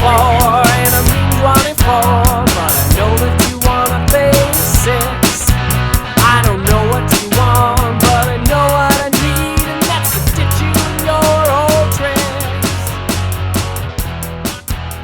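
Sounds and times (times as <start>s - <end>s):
lead guitar line bending in pitch: 0.0s - 2.6s
drum beat: 0.0s - 15.0s.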